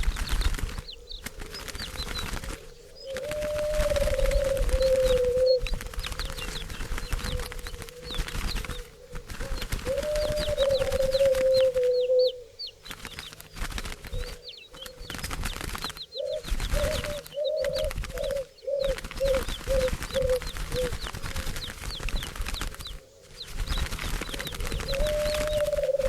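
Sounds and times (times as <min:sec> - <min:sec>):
low bird call: 0:00.0 - 0:12.8, 0:16.0 - 0:21.6, 0:24.2 - 0:26.0
small birds chirping: 0:00.0 - 0:26.0.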